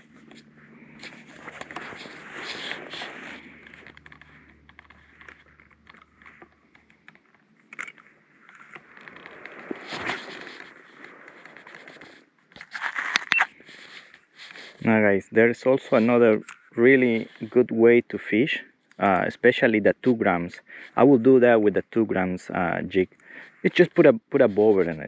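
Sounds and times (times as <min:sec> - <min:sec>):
footsteps walking: 0:00.0 - 0:14.9.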